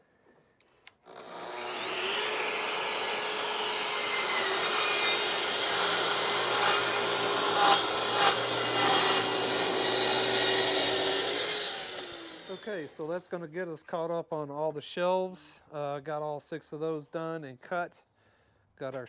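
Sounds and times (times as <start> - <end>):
electric saw cutting wood: 1.0 - 13.1.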